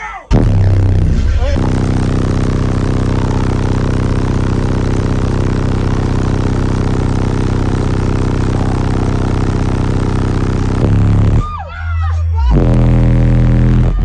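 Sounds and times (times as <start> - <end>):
truck engine idling: 0.5 - 11.5.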